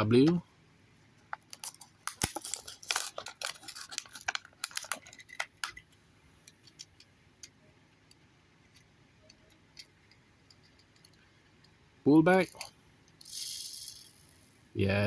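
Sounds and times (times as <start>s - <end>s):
toy car clicks and crackles: 1.4s - 5.8s, 12.5s - 14.4s.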